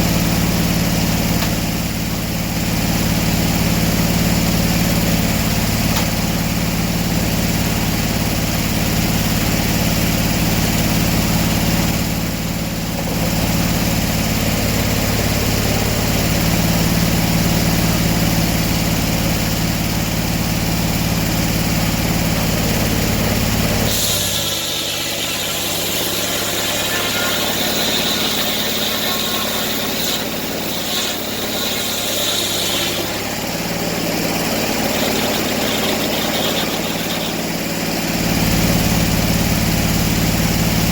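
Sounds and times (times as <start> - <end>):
engine humming: 20.5 - 40.9
hissing whine: 23.7 - 39.1.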